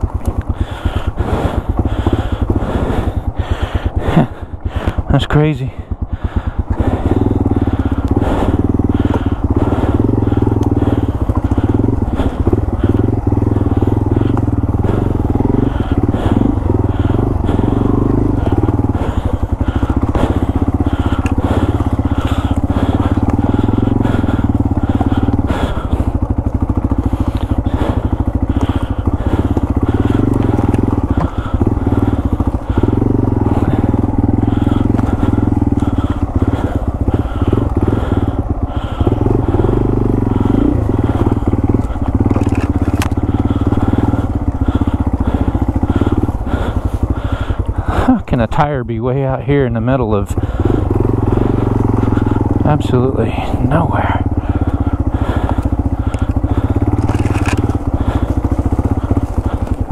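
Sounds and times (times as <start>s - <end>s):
branches knocking against motorcycle: 0.0s - 0.8s, 6.7s - 48.2s, 54.4s - 59.9s
motorcycle engine running: 0.0s - 59.9s.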